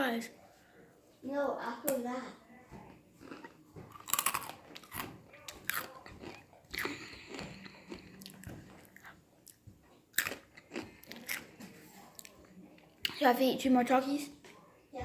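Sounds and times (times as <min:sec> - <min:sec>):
crunching and chewing chips: 0:03.2 - 0:12.4.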